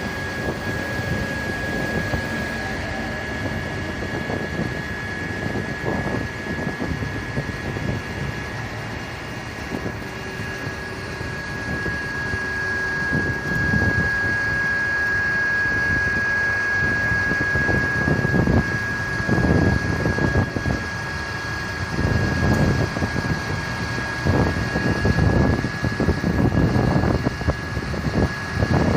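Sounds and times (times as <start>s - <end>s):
low rumbling: 0.0s - 14.5s
vehicle machinery high whine: 0.0s - 28.9s.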